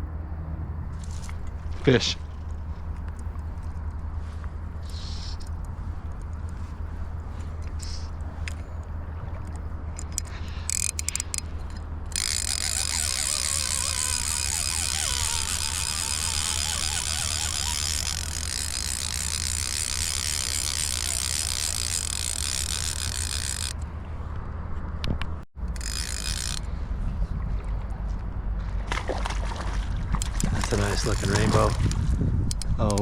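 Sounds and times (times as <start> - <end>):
fishing reel ratcheting: 10.0 - 23.8, 25.6 - 26.7, 30.4 - 32.0.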